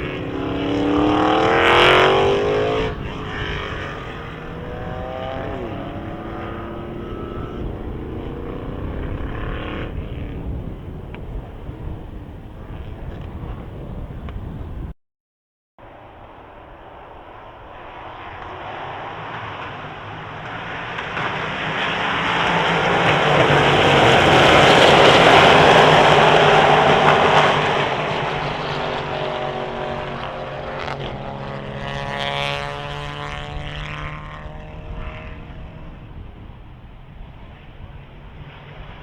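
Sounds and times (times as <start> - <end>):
race car passing at speed: 0.0 - 10.6, 15.8 - 39.0.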